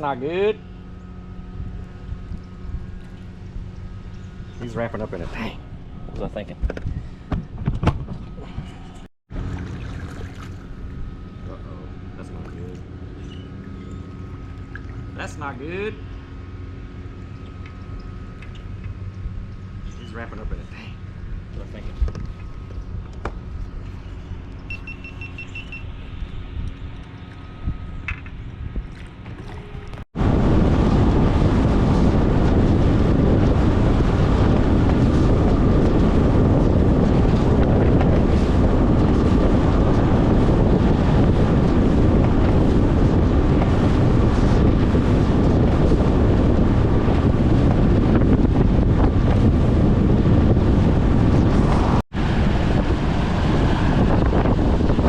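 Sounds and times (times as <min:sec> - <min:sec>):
outboard motor: 0:00.0 - 0:55.0
wind buffeting microphone: 0:00.8 - 0:55.0
rushing water: 0:09.4 - 0:10.8.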